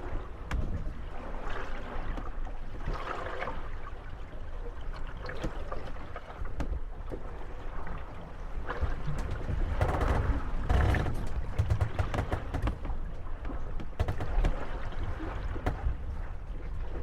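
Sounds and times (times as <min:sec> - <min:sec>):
water slapping against hulls: 0:00.0 - 0:17.0
boats knocking together: 0:08.9 - 0:16.5.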